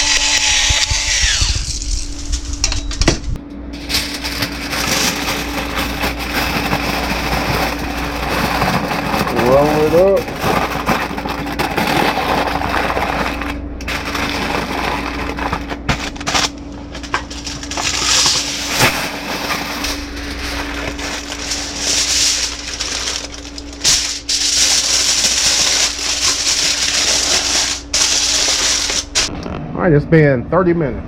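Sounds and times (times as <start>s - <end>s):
aluminum foil crinkling: 3.8s - 29.3s.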